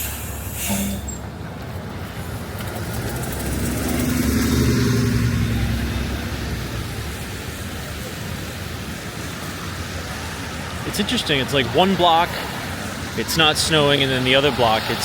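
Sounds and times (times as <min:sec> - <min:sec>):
traffic noise: 0:00.0 - 0:15.0
vehicle passing: 0:00.9 - 0:15.0.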